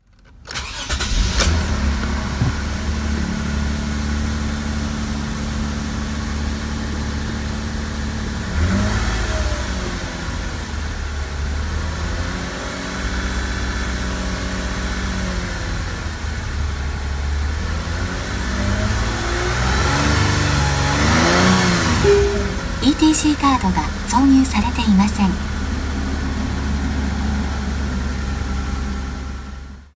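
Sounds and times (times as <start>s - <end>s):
car engine starting: 0.0s - 29.9s
car engine idling: 0.5s - 8.7s, 20.8s - 29.8s.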